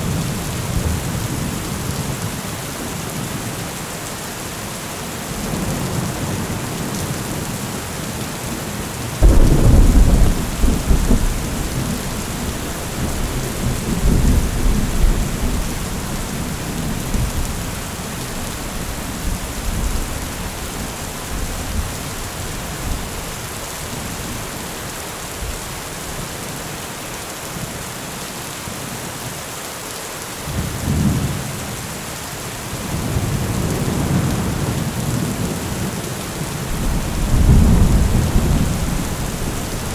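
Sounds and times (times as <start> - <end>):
heavy rain: 0.0 - 39.9
thunder rumbling: 9.2 - 23.4, 36.7 - 39.9.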